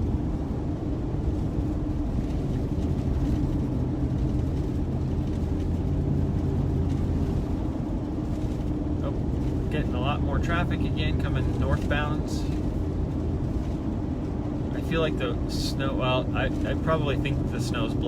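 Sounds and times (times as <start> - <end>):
car road and engine noise: 0.0 - 18.0
faint constant hum: 0.0 - 18.0.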